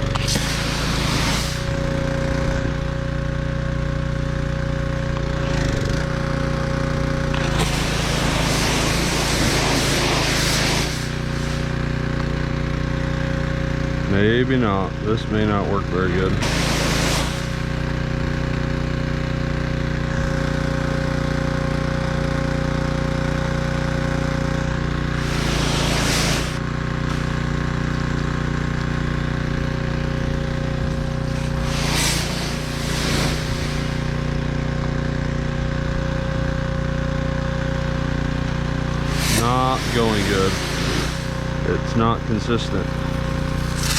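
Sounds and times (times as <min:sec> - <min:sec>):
water spray hissing: 0:00.0 - 0:02.4, 0:07.1 - 0:12.3, 0:16.4 - 0:18.9, 0:24.6 - 0:35.0, 0:38.7 - 0:43.9
pressure washer engine running: 0:00.0 - 0:43.9.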